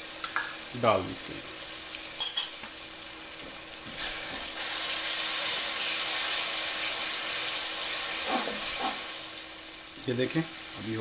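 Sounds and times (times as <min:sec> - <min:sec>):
onions sizzling in hot oil: 0:00.0 - 0:11.0
spatula stirring: 0:08.0 - 0:09.2.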